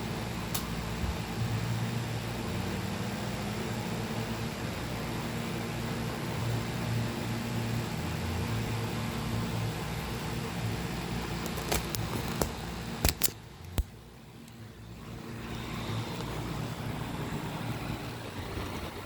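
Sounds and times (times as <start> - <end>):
heat pump low hum: 0.0 - 19.0
sharp clicks: 11.4 - 14.6.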